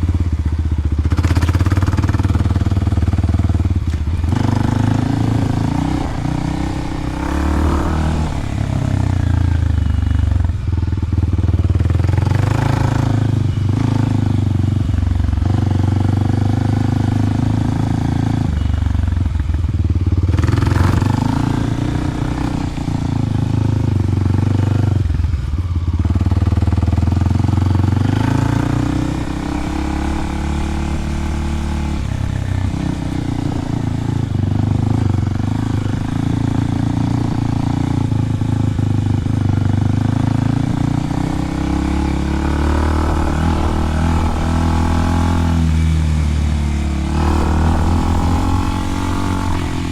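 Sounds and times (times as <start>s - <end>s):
dirt bike engine revving: 1.0s - 10.3s, 11.8s - 14.5s, 20.3s - 24.7s, 26.7s - 49.9s.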